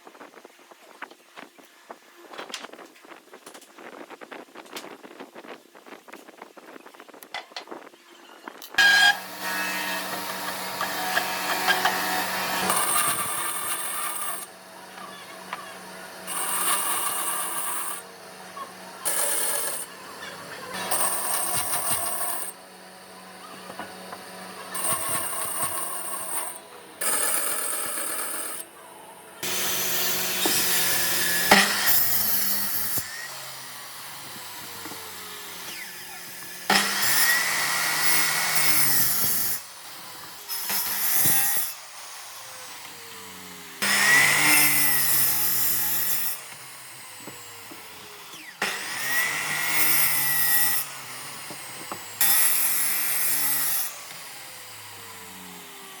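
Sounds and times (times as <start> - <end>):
power tool working wood: 8.8 - 56.0.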